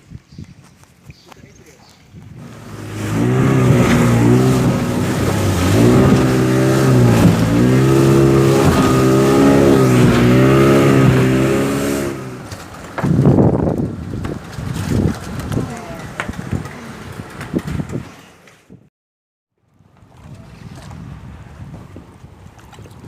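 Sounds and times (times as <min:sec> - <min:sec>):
outboard motor at high revs: 0:02.4 - 0:18.1.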